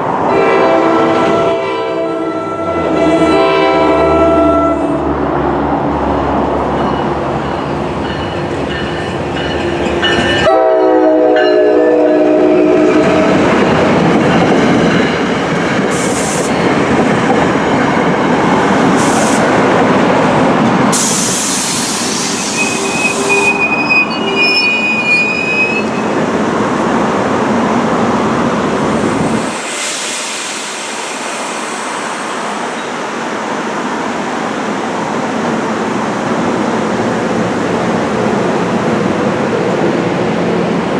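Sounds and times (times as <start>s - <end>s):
train rumbling on rails: 0.0s - 40.9s
locomotive horn: 0.3s - 5.2s, 10.4s - 13.4s, 22.4s - 26.0s
brief high squeal: 22.2s - 26.0s.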